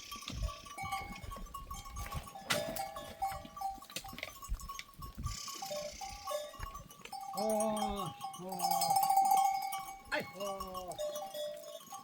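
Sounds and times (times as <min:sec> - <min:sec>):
goat bells ringing: 0:00.0 - 0:12.0.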